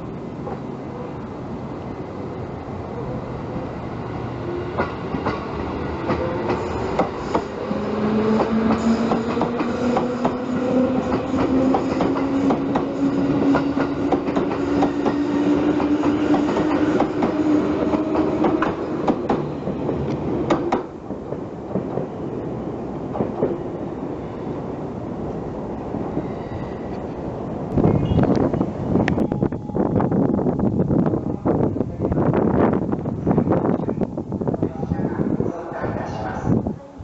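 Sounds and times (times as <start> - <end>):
train rumble: 0.0 - 37.0
rail-joint clicks: 6.0 - 7.6, 8.4 - 15.2, 15.8 - 22.1.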